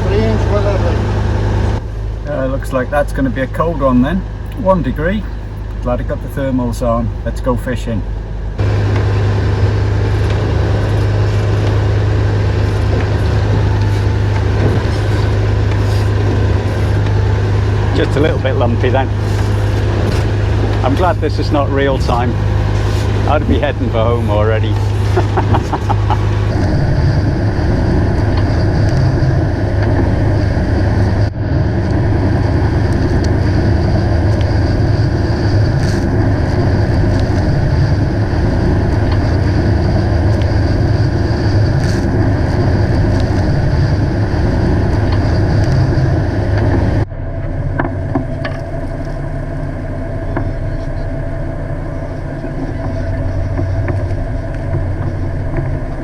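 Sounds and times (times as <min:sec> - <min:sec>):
boat engine humming: 0:00.0 - 0:56.0.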